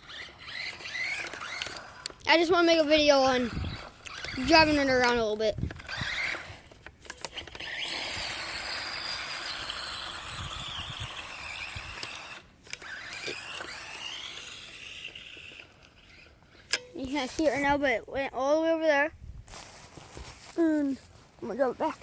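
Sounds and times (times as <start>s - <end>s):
toy truck electric motor whining: 0.0s - 17.5s.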